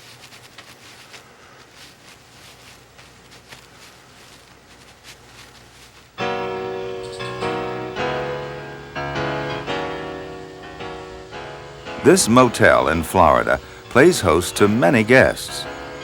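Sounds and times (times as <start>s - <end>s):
faint hiss: 0.0s - 16.0s
piano music: 6.2s - 16.0s.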